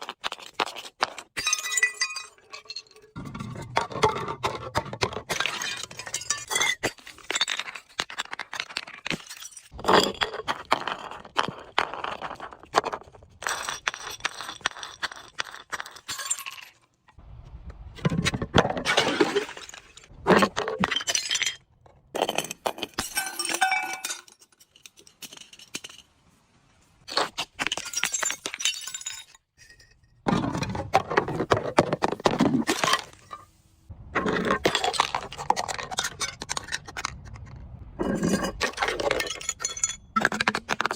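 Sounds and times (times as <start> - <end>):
glass breaking and crunching: 1.4 - 3.5, 5.3 - 11.2, 12.8 - 16.9, 18.8 - 26.1, 27.1 - 29.8, 38.0 - 40.9.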